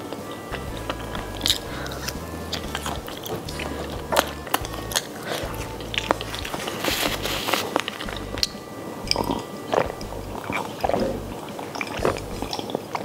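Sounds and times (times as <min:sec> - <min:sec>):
chewing with wet mouth clicks: 0:00.0 - 0:13.0
person swallowing a drink: 0:08.0 - 0:13.0.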